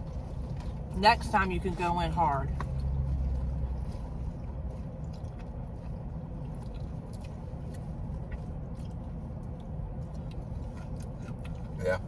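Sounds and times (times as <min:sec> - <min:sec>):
car engine idling: 0:00.0 - 0:12.0
chewing crunchy fried chicken: 0:02.6 - 0:12.0.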